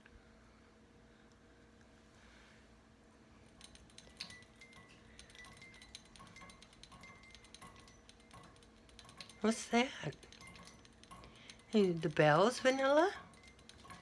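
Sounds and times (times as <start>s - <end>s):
small bell jingling: 3.5s - 14.0s.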